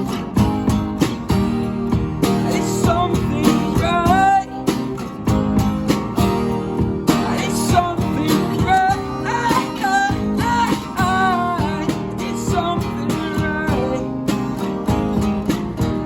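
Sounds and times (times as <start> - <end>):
acoustic guitar strumming: 0.0 - 16.0
person singing: 2.3 - 5.0, 7.1 - 14.2.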